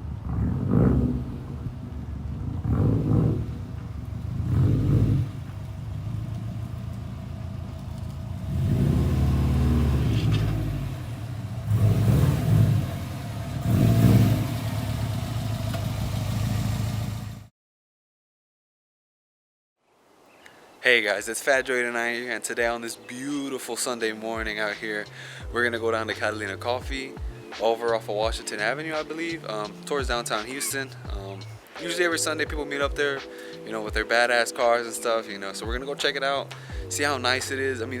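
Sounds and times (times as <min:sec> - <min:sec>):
car engine revving: 0:00.0 - 0:17.5.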